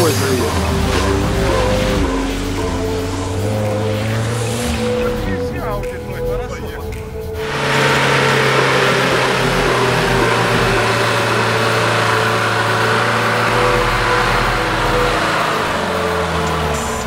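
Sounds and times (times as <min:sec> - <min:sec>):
car engine running hard: 0:00.0 - 0:17.0
loud rushing noise: 0:07.2 - 0:17.0.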